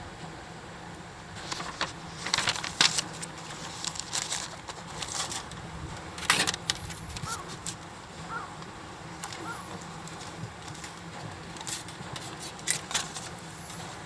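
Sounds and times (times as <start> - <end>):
metal parts clinking and rattling: 6.2 - 7.8.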